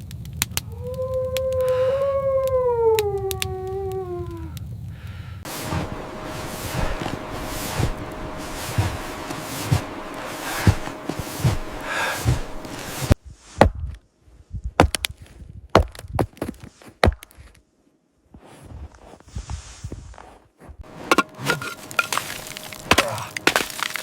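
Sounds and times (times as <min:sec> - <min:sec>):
windy hiss: 0:04.6 - 0:14.5
footsteps in snow: 0:05.5 - 0:13.2, 0:18.3 - 0:24.0
sharp knocks and cracks: 0:14.8 - 0:17.5, 0:21.1 - 0:24.0.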